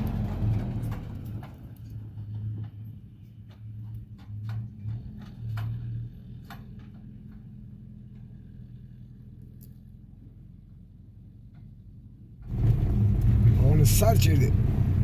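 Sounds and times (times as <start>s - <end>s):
sharp clicks and knocks: 0.2s - 8.4s.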